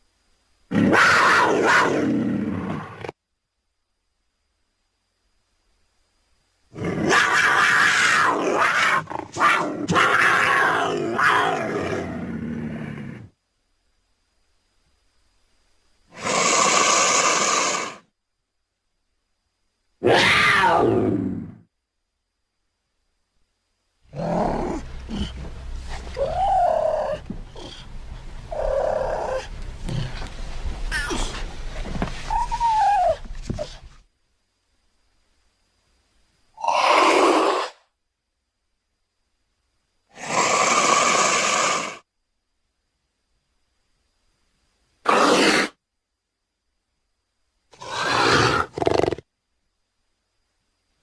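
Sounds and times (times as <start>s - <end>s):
wild cat calls: 0.7s - 3.2s, 6.7s - 13.4s, 16.1s - 18.1s, 20.0s - 21.7s, 24.1s - 34.0s, 36.6s - 37.9s, 40.1s - 42.0s, 45.0s - 45.8s, 47.7s - 49.3s
big cat growling: 24.1s - 31.5s.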